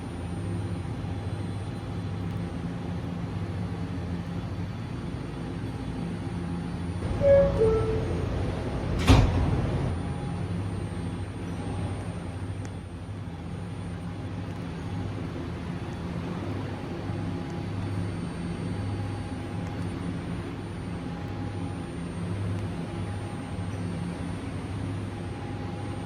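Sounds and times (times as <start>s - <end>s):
faint steady whine: 0.0s - 26.0s
subway train droning rumble: 0.0s - 26.0s.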